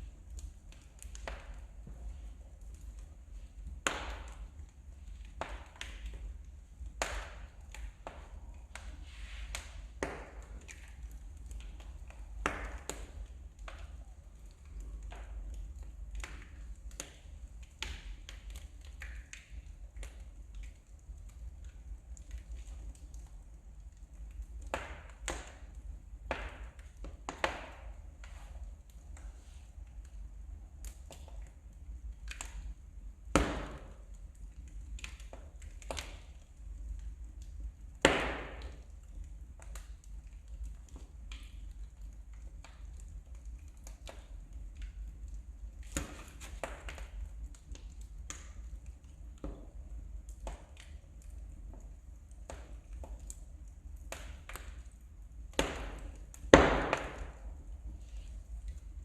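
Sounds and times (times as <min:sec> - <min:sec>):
wood fire crackling: 0:00.0 - 0:59.0
loud fire pops: 0:03.6 - 0:20.2, 0:24.6 - 0:29.0, 0:32.1 - 0:36.4, 0:37.0 - 0:40.0, 0:45.8 - 0:48.7, 0:55.5 - 0:57.6
loud pop of fire: 0:33.3 - 0:34.0, 0:38.0 - 0:38.8, 0:55.6 - 0:57.5.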